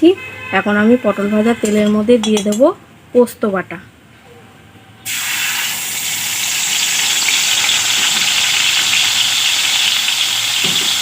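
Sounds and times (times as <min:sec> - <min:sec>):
paste sizzling in hot oil: 0:05.1 - 0:11.0.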